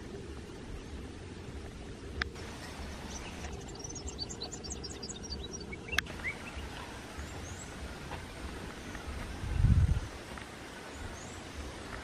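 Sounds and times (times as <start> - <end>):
small bird twittering: 2.4 - 9.7.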